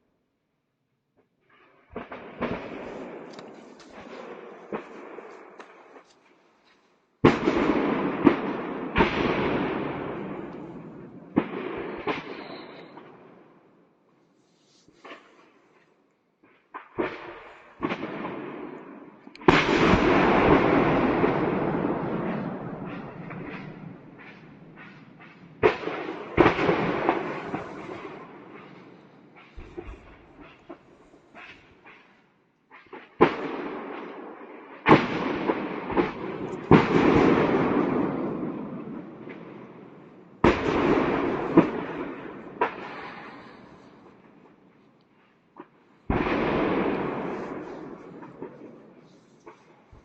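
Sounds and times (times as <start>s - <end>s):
explosions: 1.9s - 6.0s, 7.2s - 13.4s, 16.8s - 32.2s, 32.8s - 44.6s, 45.6s - 50.0s
small cracks: 2.8s - 7.0s
explosion rumble: 19.5s - 31.5s.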